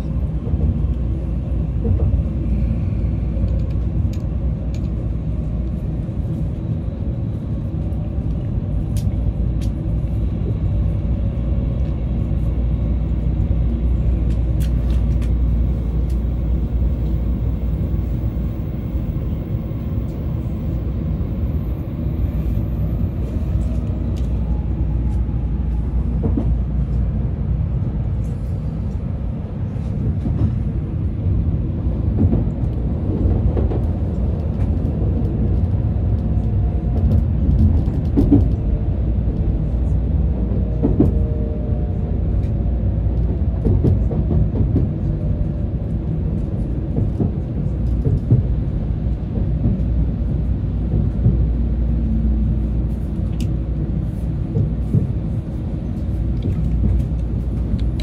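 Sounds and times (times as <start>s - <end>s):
train rumbling: 0.0s - 58.0s.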